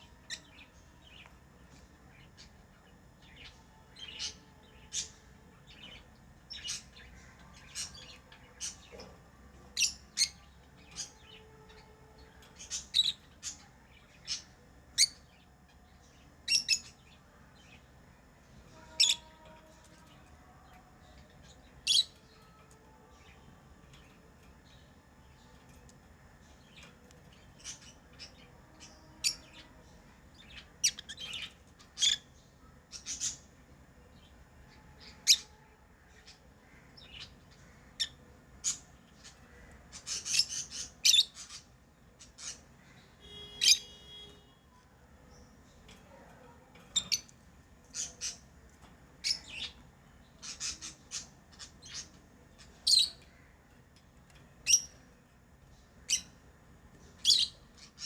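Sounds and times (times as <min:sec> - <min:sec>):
lovebirds chirping: 0:26.5 - 0:35.6, 0:36.2 - 0:53.5, 0:54.2 - 0:55.1, 0:55.7 - 0:58.0
bird squawk: 0:42.4 - 0:44.5.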